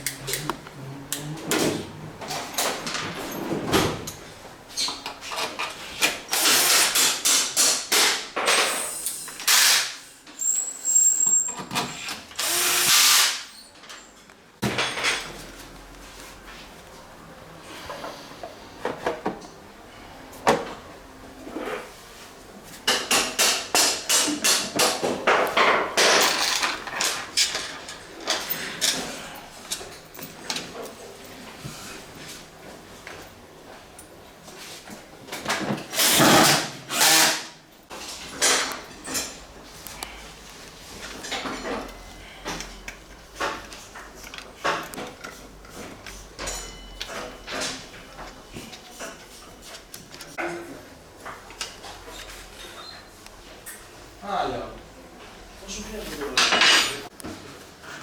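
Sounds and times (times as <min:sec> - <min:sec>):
tools scraping and clattering: 0:22.8 - 0:32.4, 0:34.6 - 0:39.5, 0:40.8 - 0:50.5, 0:56.1 - 0:57.2.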